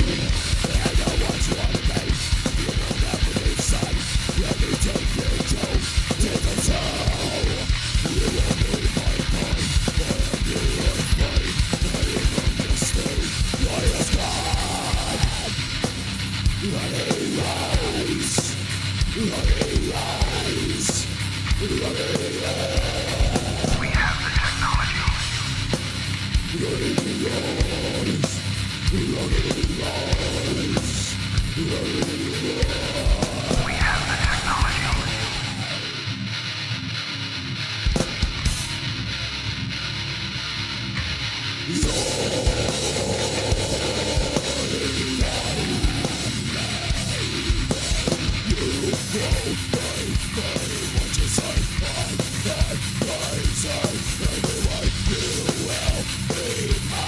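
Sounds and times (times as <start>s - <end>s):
distorted electric guitars: 0.0s - 57.0s
heavy metal song: 0.0s - 57.0s
hard-hit drumbeat: 21.6s - 35.8s, 41.8s - 57.0s.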